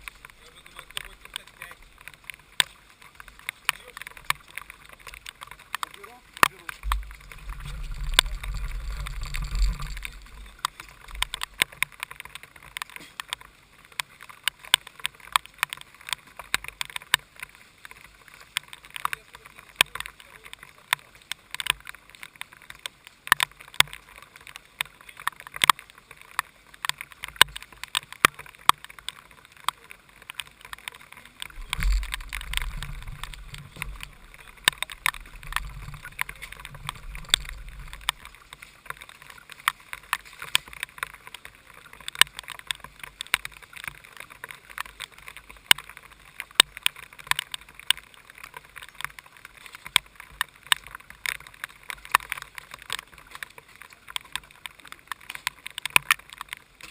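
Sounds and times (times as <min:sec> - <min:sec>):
heavy rain tapping on camera: 0:00.0 - 0:56.9
low rumble: 0:06.8 - 0:11.4, 0:31.5 - 0:38.4.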